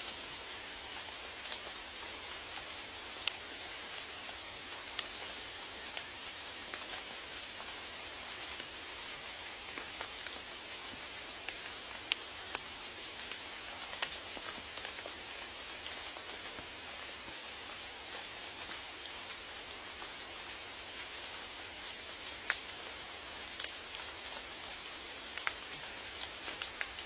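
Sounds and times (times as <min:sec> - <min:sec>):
steady rain pattering: 0:00.0 - 0:27.0.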